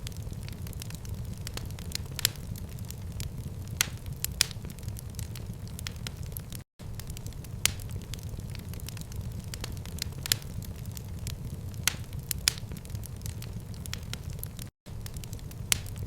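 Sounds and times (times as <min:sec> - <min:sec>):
fire burning rumble: 0:00.0 - 0:16.0
fire pops and crackles: 0:00.0 - 0:16.0.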